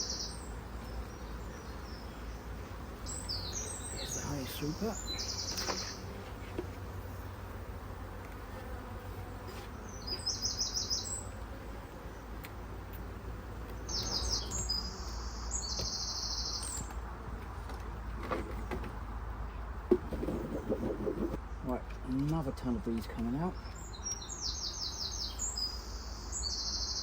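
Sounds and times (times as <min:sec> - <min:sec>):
songbird trilling: 0:03.0 - 0:06.0, 0:09.9 - 0:11.3.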